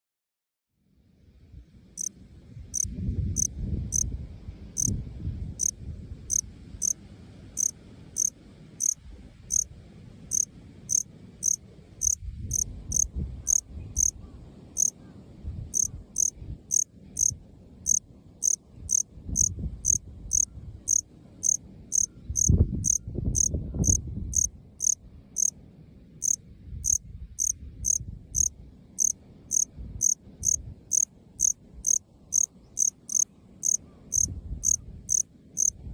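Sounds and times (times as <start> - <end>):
cricket chirping: 2.7 - 4.1, 4.8 - 5.0, 5.6 - 7.0, 7.6 - 9.7, 10.3 - 14.2, 15.7 - 25.5, 26.2 - 35.8.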